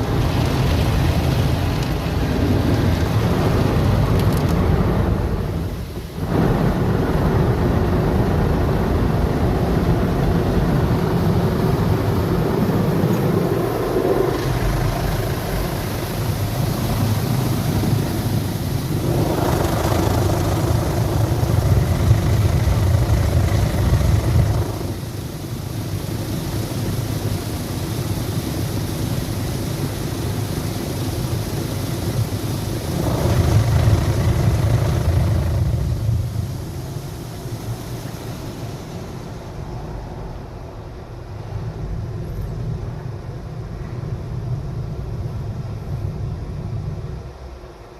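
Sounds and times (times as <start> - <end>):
car wash machinery rumbling: 0.0 - 47.9.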